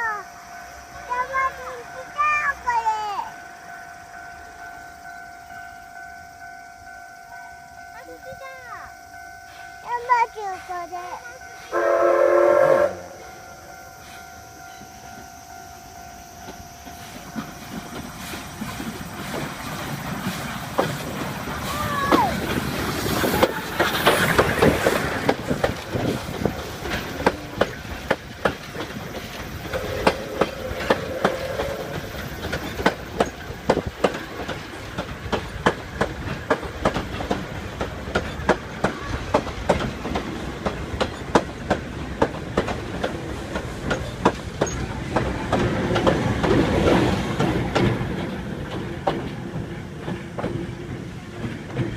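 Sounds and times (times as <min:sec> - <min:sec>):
steam train passing: 0:00.0 - 0:51.9
wheels clacking over rail joints: 0:15.9 - 0:51.9.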